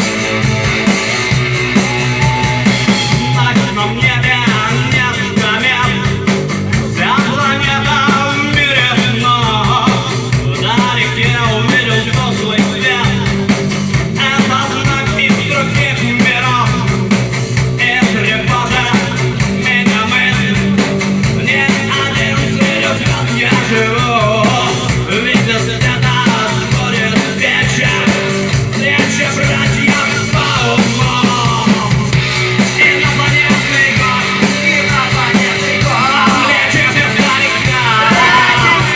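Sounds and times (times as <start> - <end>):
rock band playing: 0.0 - 38.9
person singing: 1.7 - 6.3, 17.8 - 38.9.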